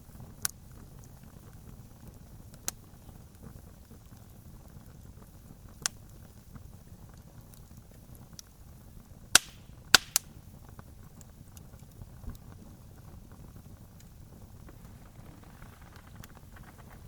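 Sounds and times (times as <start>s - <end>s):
burning wood popping: 0.0s - 17.0s
campfire crackling: 0.0s - 17.0s
low steady rumble: 7.8s - 17.0s.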